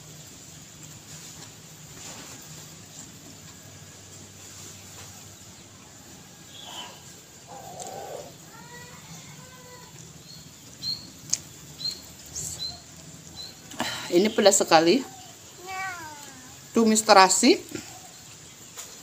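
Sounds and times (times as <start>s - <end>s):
birds calling: 6.5s - 16.9s.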